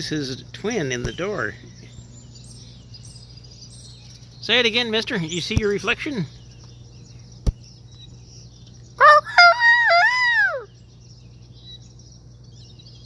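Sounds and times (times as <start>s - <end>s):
rooster crowing: 9.0s - 10.7s.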